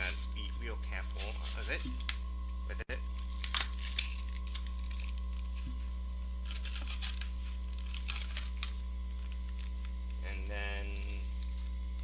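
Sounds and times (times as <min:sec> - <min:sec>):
electrical mains hum: 0:00.0 - 0:12.0
packaging crinkling and tearing: 0:03.1 - 0:11.8.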